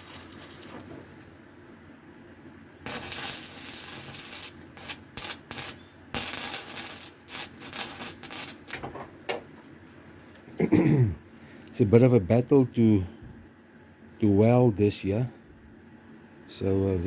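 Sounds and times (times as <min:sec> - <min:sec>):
welding arc crackling and hissing: 0:00.0 - 0:01.2, 0:02.9 - 0:08.8.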